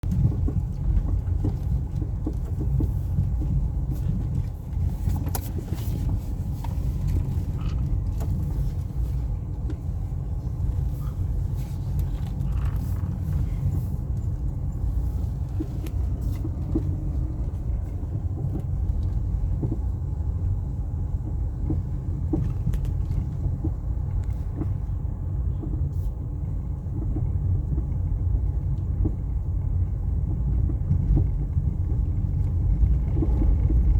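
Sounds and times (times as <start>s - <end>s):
car road and drivetrain rumble: 0.0s - 33.9s
wheel knocking: 15.3s - 24.9s.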